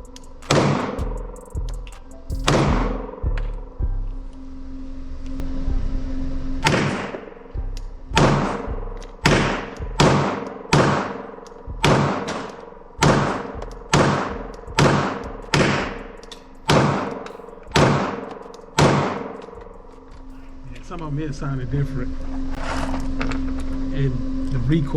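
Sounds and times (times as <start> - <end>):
pistol shots with ringing echo: 6.6 - 7.3, 9.3 - 15.8, 16.7 - 19.4.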